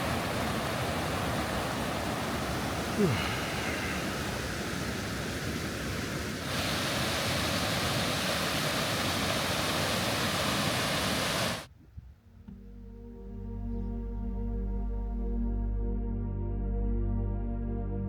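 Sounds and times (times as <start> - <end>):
steady rushing noise: 0.0 - 11.7
soft ambient music: 12.3 - 18.0.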